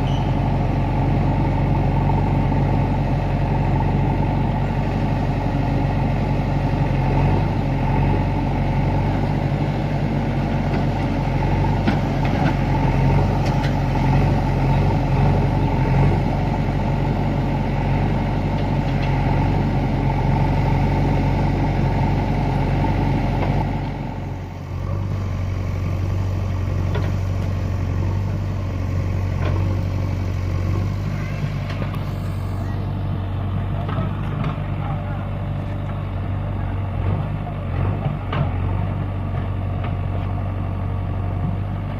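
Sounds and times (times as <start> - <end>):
tractor diesel engine droning: 0.0 - 41.9.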